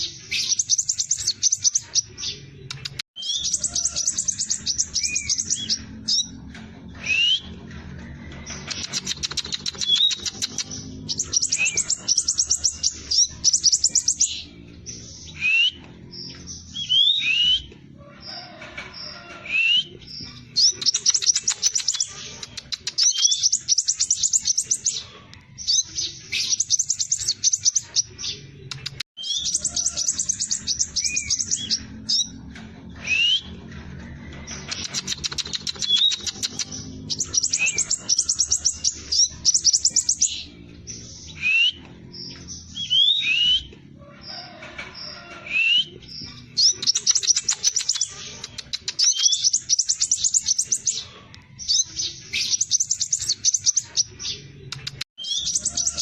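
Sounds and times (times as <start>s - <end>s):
bird trilling: 0.0s - 6.4s, 8.5s - 14.6s, 25.8s - 32.4s, 34.5s - 40.6s, 51.7s - 56.0s.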